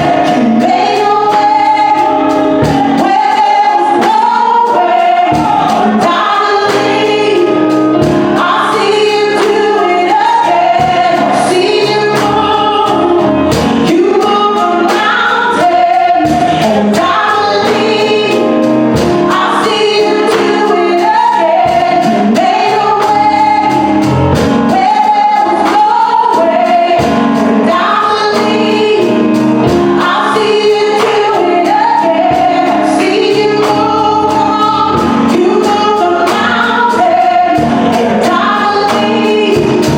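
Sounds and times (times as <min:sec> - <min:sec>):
drum beat: 0:00.0 - 0:07.2
bass line: 0:00.0 - 0:39.9
group vocals: 0:00.0 - 0:39.9
keyboard chords: 0:00.0 - 0:39.9
lead singer: 0:00.0 - 0:39.9.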